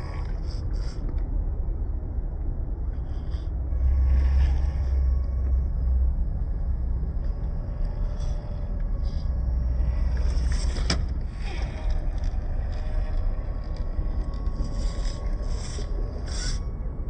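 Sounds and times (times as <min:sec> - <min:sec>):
steady low rumble: 0:00.0 - 0:17.0
small electric motor whining: 0:07.2 - 0:16.7
toy truck scraping over rock: 0:09.1 - 0:16.6.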